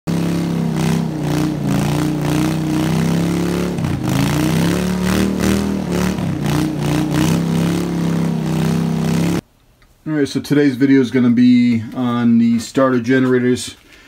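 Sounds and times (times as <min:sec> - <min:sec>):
small engine running at high speed: 0:00.1 - 0:09.4.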